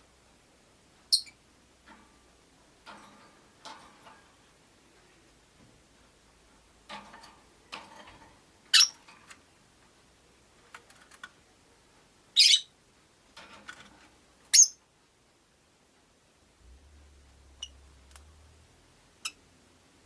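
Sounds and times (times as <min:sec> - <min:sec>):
quiet clicks and rustles: 0:01.6 - 0:12.1, 0:13.1 - 0:14.9
shrill bird calls: 0:12.4 - 0:12.7.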